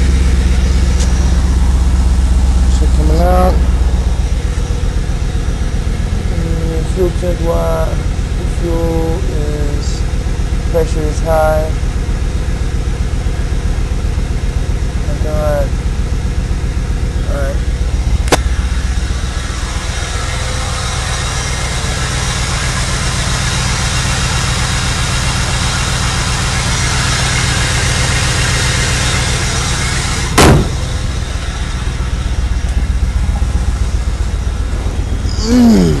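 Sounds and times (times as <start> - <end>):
car engine idling: 0.0 - 36.0
sharp knock: 30.4 - 30.9.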